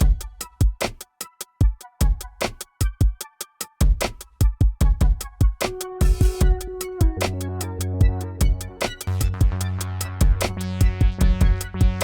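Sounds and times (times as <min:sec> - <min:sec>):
held bass note and chord: 0:07.1 - 0:12.0.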